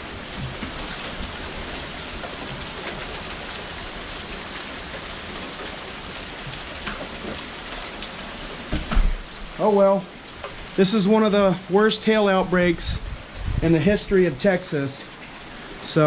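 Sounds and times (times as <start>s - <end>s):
rain pattering on wet ground: 0.0s - 16.0s.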